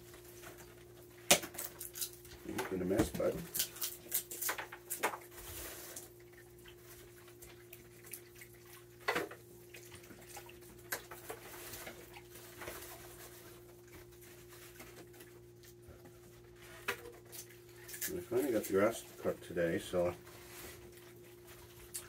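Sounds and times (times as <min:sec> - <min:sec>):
peanut shells cracking: 0:01.3 - 0:02.4, 0:03.4 - 0:05.2.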